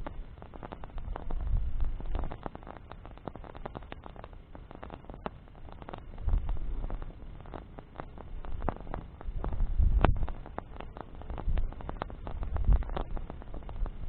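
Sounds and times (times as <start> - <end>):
campfire crackling: 0.0 - 14.0
low rumble of flames: 0.0 - 14.0
sharp snaps and pops: 0.0 - 14.0.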